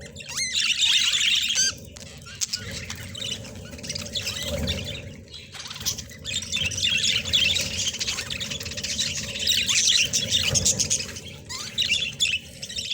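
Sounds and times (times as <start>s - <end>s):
budgerigars chattering: 0.0s - 12.9s.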